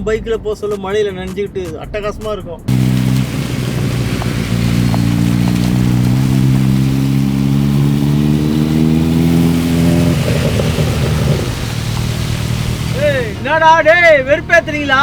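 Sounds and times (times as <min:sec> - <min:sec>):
motorcycle engine revving under load: 0:02.7 - 0:15.0.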